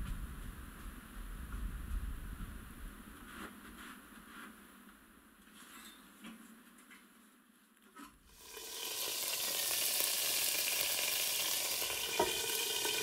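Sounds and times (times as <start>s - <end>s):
pork chops sizzling on a griddle: 8.3s - 13.0s.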